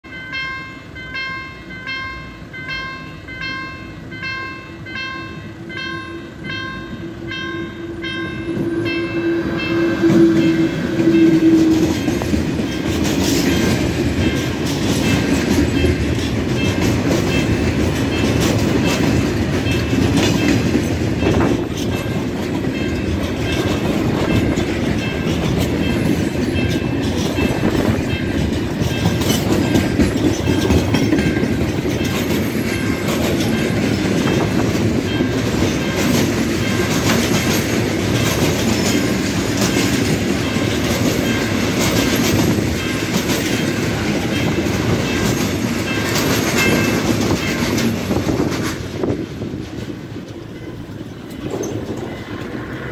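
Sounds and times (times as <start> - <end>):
train horn blast: 6.0 - 12.1
wagons rumbling and clattering: 9.7 - 52.9.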